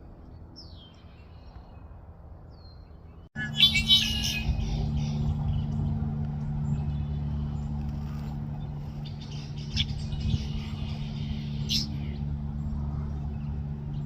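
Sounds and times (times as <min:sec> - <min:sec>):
low mechanical hum: 0:00.0 - 0:14.0
blackbirds chirping: 0:02.5 - 0:14.0.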